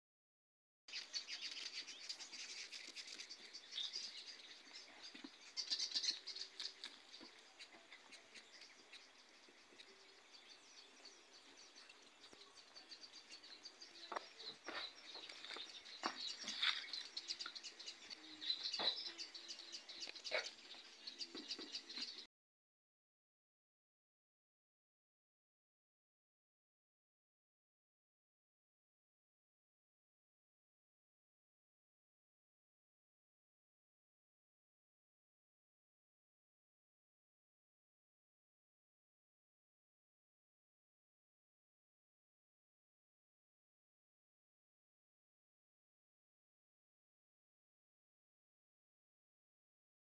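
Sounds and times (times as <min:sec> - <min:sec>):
birds chirping: 0:00.9 - 0:22.3.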